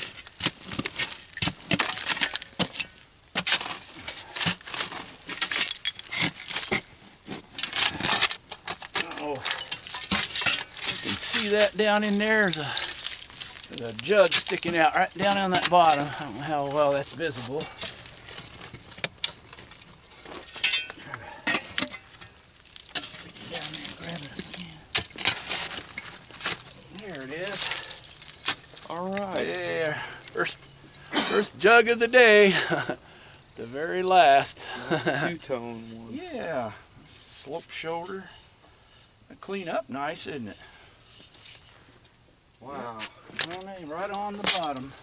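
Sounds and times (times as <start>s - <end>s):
digging tool scraping dirt: 0.0s - 32.4s
glass clinking: 20.4s - 22.2s.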